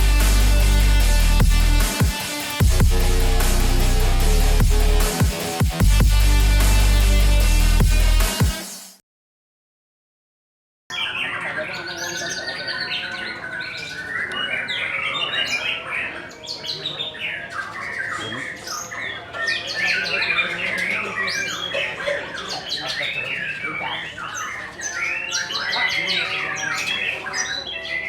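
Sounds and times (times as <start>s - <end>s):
songbirds singing and chirping: 10.9s - 28.0s.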